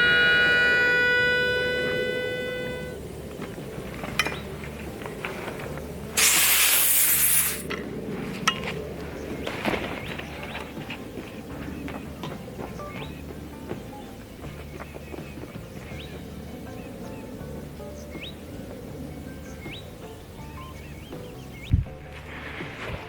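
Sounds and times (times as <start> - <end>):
compressed air hiss: 6.1 - 7.7.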